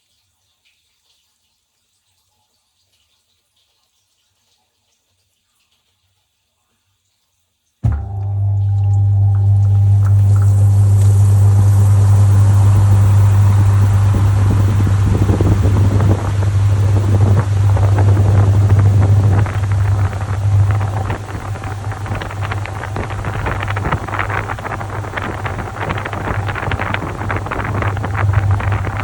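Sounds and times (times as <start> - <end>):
washing machine motor hum: 7.8 - 29.0
water and laundry churning: 7.8 - 29.0.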